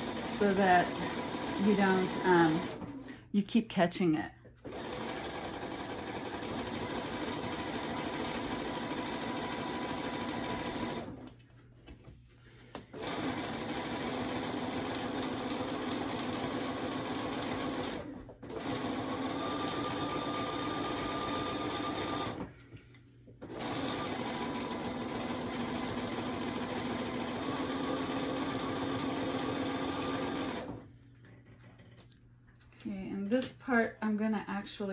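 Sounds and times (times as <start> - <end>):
sewing machine stitching: 0.0 - 3.1, 4.6 - 11.3, 12.9 - 22.5, 23.4 - 30.9.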